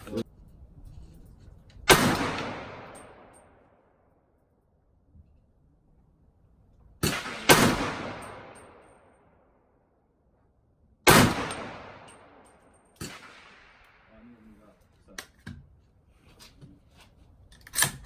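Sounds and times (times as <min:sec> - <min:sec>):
rifle shots with echo: 0:01.9 - 0:03.6, 0:07.0 - 0:09.2, 0:11.0 - 0:14.1.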